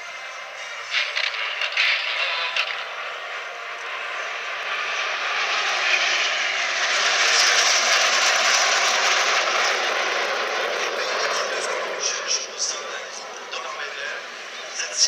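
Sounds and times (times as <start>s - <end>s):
jets flying past roaring: 1.4s - 15.0s.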